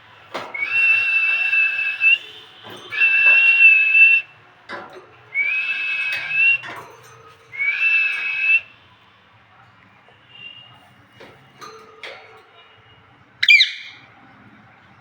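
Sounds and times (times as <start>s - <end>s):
parrot whistling: 0.5s - 4.3s, 5.3s - 6.6s, 7.5s - 8.7s, 13.4s - 14.0s.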